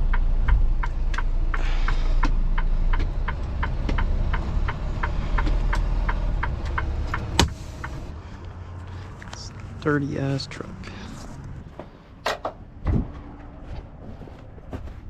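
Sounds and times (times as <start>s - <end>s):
diesel engine idling: 0.0s - 11.2s.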